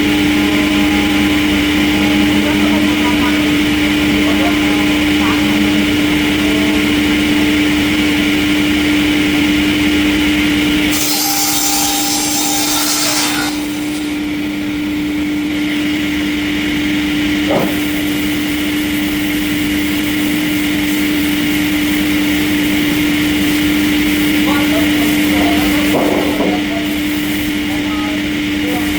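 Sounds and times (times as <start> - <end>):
sawmill machinery humming: 0.0 - 28.9
saw cutting wood: 10.8 - 15.0.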